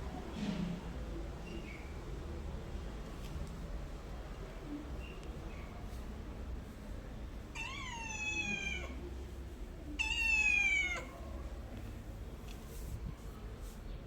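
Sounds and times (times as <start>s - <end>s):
cat meowing: 7.6s - 9.0s, 10.0s - 11.1s.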